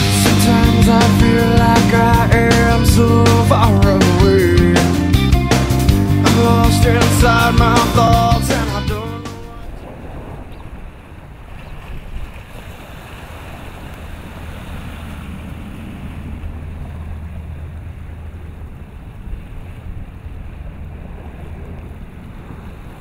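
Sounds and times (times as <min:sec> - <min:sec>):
low steady rumble: 0:00.0 - 0:11.4, 0:13.7 - 0:23.0
wind buffeting the microphone: 0:09.4 - 0:23.0.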